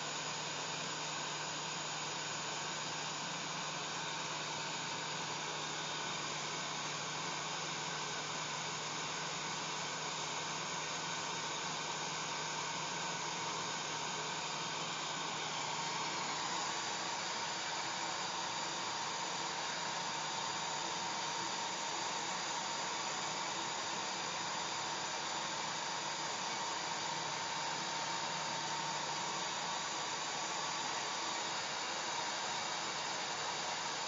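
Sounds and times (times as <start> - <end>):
hair dryer running: 11.1 - 34.0.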